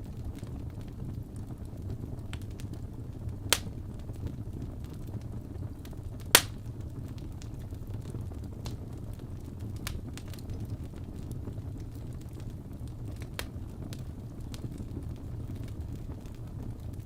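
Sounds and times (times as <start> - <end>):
fire crackling: 0.0 - 17.0
fire popping: 0.0 - 17.0.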